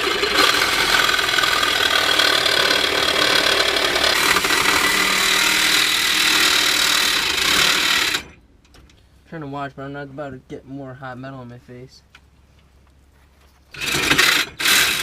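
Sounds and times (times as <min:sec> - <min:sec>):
reciprocating saw cutting metal pipe: 0:00.0 - 0:08.4, 0:13.7 - 0:15.0.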